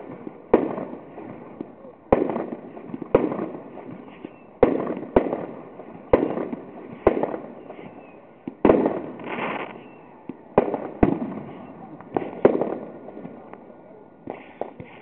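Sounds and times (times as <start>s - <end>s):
fireworks bangs with echo: 0.0s - 15.0s.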